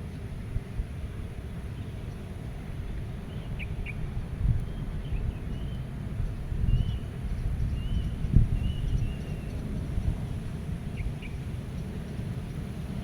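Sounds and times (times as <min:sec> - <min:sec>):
gusty wind rumble: 0:04.0 - 0:13.0.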